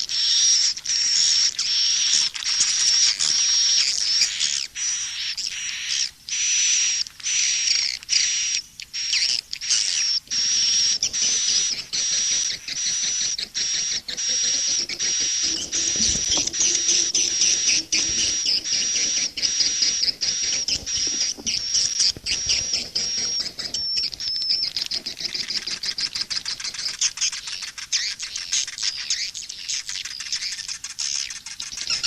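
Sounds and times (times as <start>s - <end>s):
swiftlet twittering chirps: 8.4s - 28.2s.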